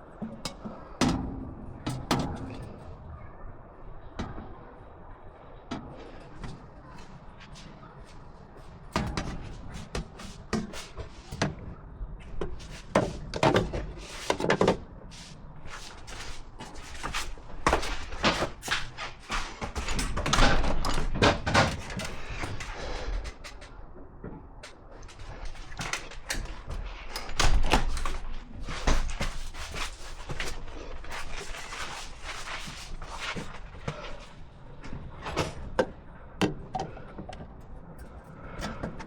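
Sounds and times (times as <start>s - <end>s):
tools knocking and clattering: 0.1s - 2.8s, 16.1s - 31.9s.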